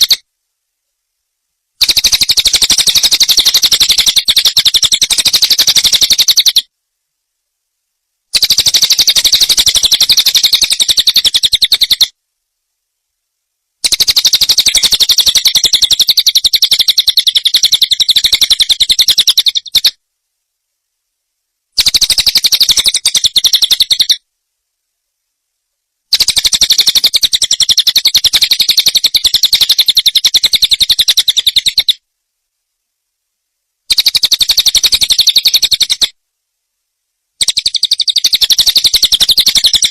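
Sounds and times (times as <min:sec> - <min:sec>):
small bird trilling chatter: 0:00.0 - 0:00.2, 0:01.8 - 0:06.7, 0:08.3 - 0:12.1, 0:13.8 - 0:20.0, 0:21.8 - 0:24.2, 0:26.1 - 0:32.0, 0:33.9 - 0:36.1, 0:37.4 - 0:39.9.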